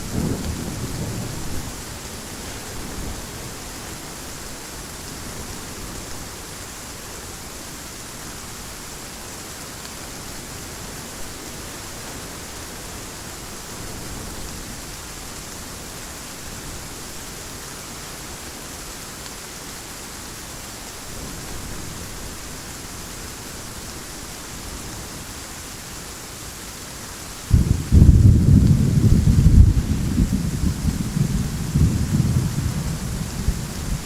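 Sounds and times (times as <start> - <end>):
deep thunder rumble: 0.0 - 3.4, 27.5 - 34.0
heavy rain hiss: 0.0 - 34.0.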